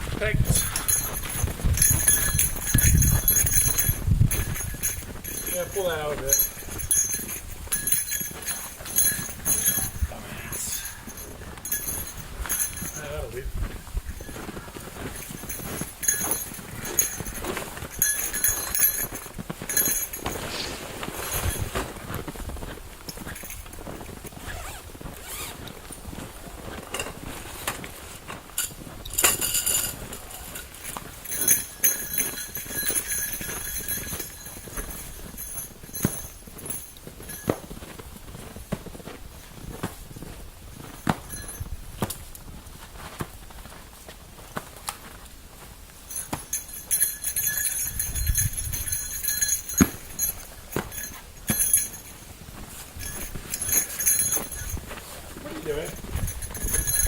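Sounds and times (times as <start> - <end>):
footsteps crunching on snow: 0.0 - 29.0.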